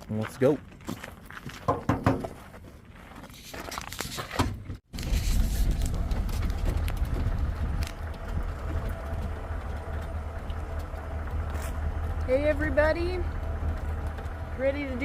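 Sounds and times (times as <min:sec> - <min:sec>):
vehicle engine rumbling: 0:04.5 - 0:15.0.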